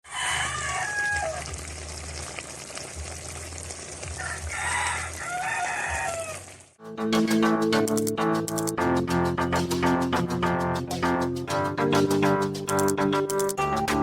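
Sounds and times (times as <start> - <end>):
rooster crowing: 0.0 - 1.6, 4.2 - 6.6.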